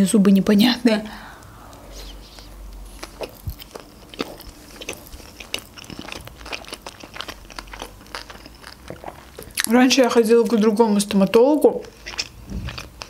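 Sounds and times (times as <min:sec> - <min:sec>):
chewing food: 0:02.2 - 0:13.0.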